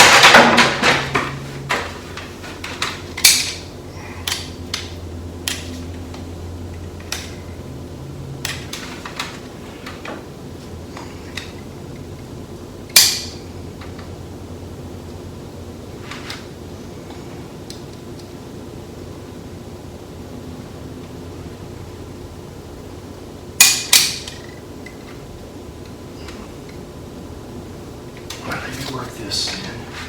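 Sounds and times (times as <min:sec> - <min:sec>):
steady low hum: 0:00.0 - 0:30.0
tools clicking and knocking: 0:02.6 - 0:05.7.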